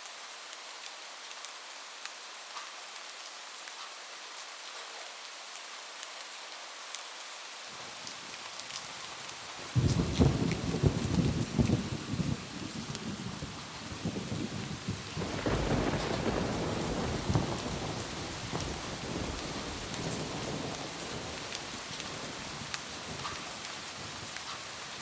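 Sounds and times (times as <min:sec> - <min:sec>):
rain on a roof: 0:00.0 - 0:25.0
low rumble of thunder: 0:09.7 - 0:24.4.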